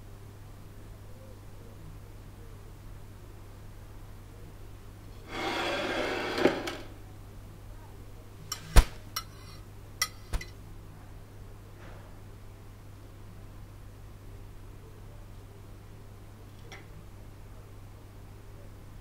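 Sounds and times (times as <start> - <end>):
plate sliding on wooden table: 5.2 - 6.9.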